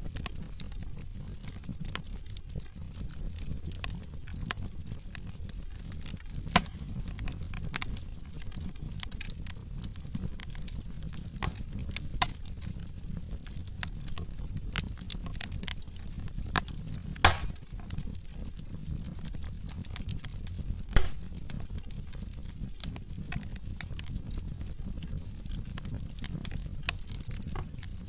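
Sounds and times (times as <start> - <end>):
low rumble of flames: 0.0 - 28.0
logs crackling and snapping: 0.1 - 28.0
loud fire pops: 3.4 - 24.2.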